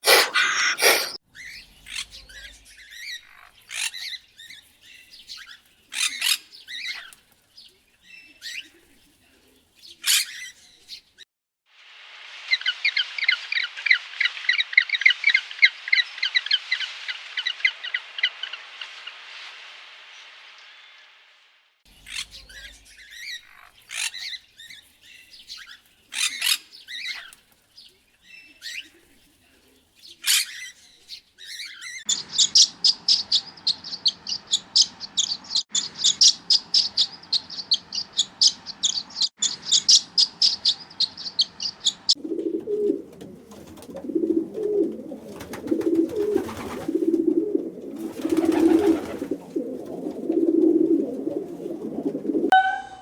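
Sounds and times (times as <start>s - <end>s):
high bird chirping: 0.0s - 1.2s.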